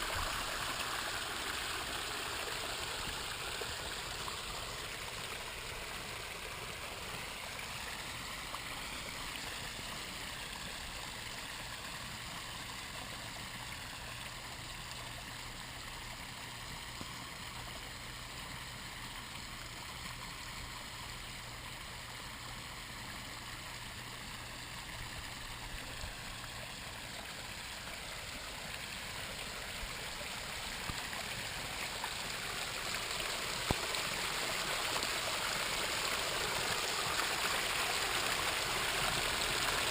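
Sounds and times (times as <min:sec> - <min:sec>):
water splashing over rocks: 0:00.0 - 0:39.9.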